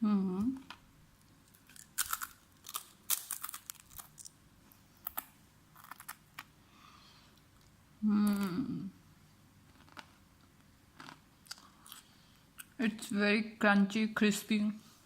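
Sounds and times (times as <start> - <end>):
chip crunching: 1.4 - 4.4, 5.0 - 6.5, 8.3 - 8.5, 9.7 - 10.2, 11.0 - 12.7.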